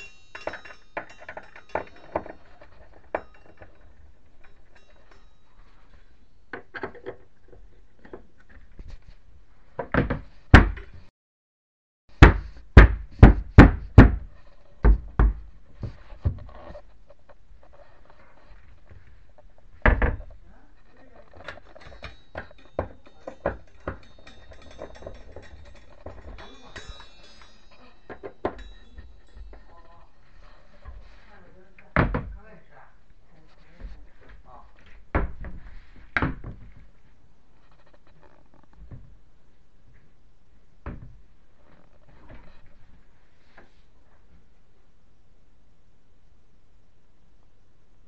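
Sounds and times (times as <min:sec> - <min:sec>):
knocks on cabinet hardware: 0:12.2 - 0:15.5.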